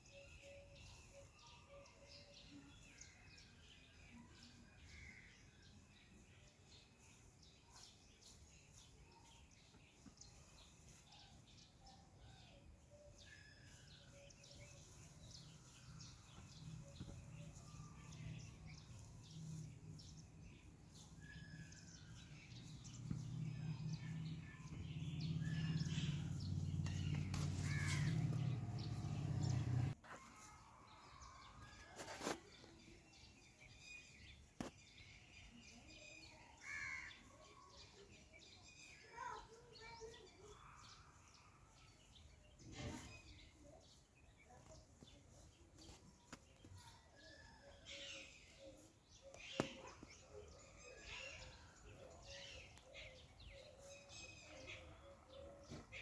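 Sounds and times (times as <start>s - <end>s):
birds calling: 7.8s - 30.4s, 44.2s - 56.0s.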